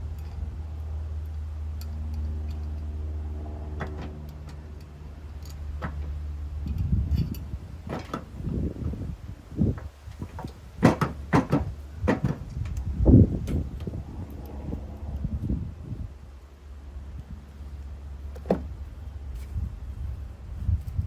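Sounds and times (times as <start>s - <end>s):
low engine-like drone: 0.0s - 9.5s, 12.3s - 21.0s
metal tools clinking on metal: 3.8s - 8.4s.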